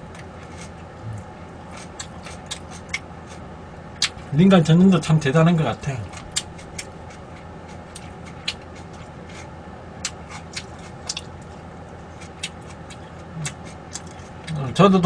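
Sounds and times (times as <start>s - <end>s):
low steady hum: 0.0s - 15.0s
chewing: 0.1s - 3.4s, 6.0s - 14.7s.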